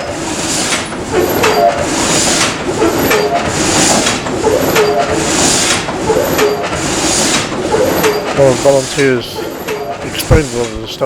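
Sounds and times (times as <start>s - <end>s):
frame saw rasping: 0.0s - 11.0s
saw frame creaking: 0.0s - 11.0s.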